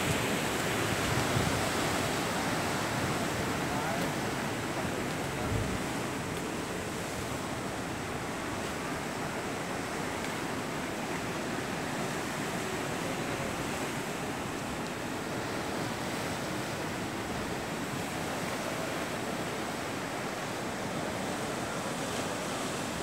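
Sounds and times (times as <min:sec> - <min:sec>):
ocean surf washing: 0:00.0 - 0:23.0.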